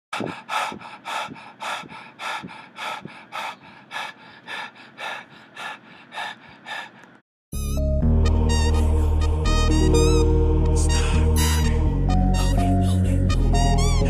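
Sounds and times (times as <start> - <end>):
man breathing hard: 0.1 - 7.2.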